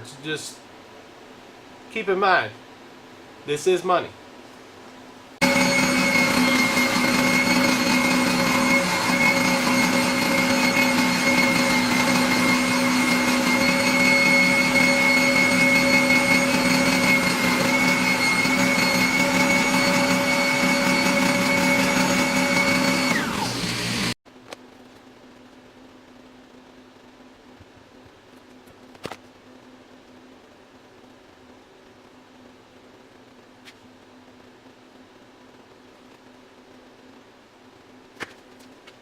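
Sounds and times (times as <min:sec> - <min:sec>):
power tool motor whining: 0:05.4 - 0:24.2.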